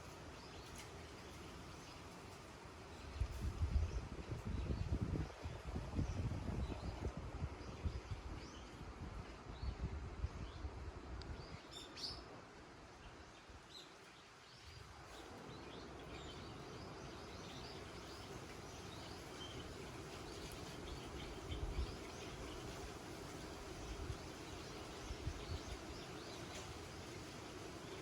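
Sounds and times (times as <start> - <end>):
soft steady hiss: 0.0 - 28.0
wind gusting on microphone: 3.0 - 11.6, 20.8 - 26.3
small birds chirping: 13.0 - 28.0.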